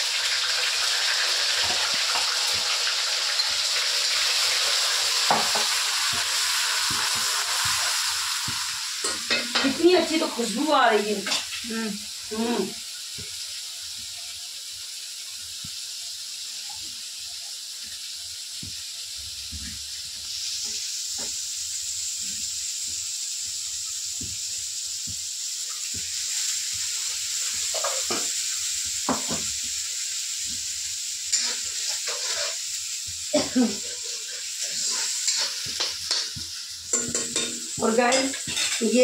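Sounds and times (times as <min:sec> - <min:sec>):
paste frying in hot oil: 0:00.0 - 0:39.0
utensils clinking and knocking: 0:36.9 - 0:39.0.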